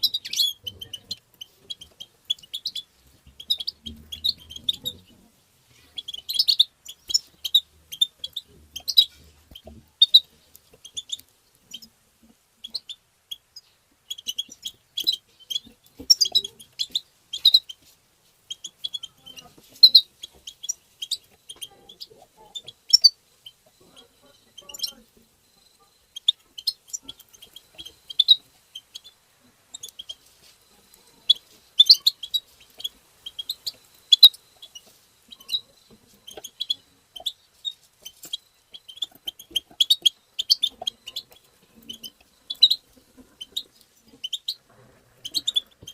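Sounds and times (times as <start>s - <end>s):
bird twittering chirps: 0.0s - 5.2s, 6.0s - 11.9s, 12.6s - 17.8s, 18.4s - 30.3s, 31.2s - 44.6s, 45.2s - 45.9s.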